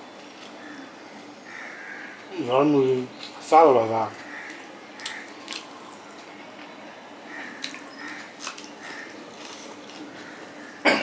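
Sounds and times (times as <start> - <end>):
wet chewing and lip-smacking: 4.5 - 6.3, 7.6 - 10.2.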